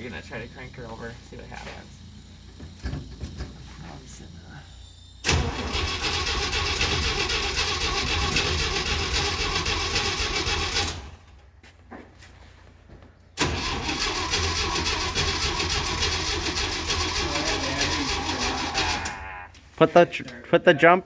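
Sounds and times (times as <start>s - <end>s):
engine cranking on starter: 0.6s - 11.4s, 13.4s - 19.5s.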